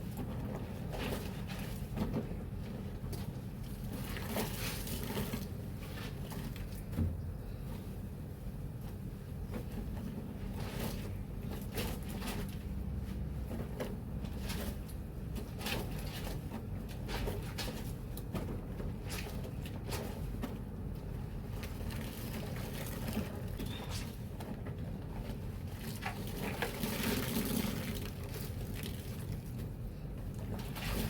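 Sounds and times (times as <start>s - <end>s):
water sloshing and splashing: 3.1s - 7.0s, 21.4s - 23.6s, 25.6s - 29.8s.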